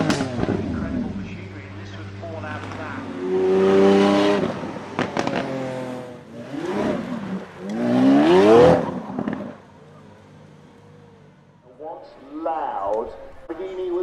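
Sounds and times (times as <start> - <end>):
exhaust pops and crackles: 0.0 - 8.0, 8.8 - 10.9
car engine revving: 0.0 - 14.0.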